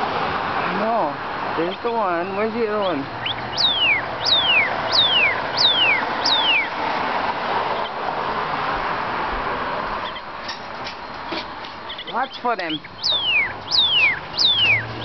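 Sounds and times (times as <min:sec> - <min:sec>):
bird whistles sliding down: 0:13.0 - 0:14.9.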